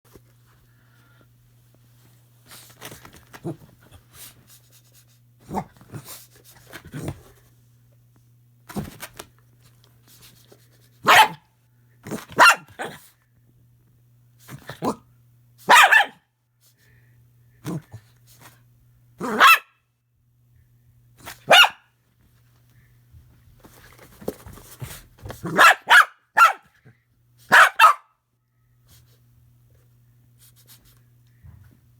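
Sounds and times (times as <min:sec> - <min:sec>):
dog barking: 0:11.0 - 0:11.4, 0:12.4 - 0:13.0, 0:15.6 - 0:16.2, 0:19.2 - 0:19.8, 0:21.4 - 0:21.9, 0:25.5 - 0:26.7, 0:27.5 - 0:28.2.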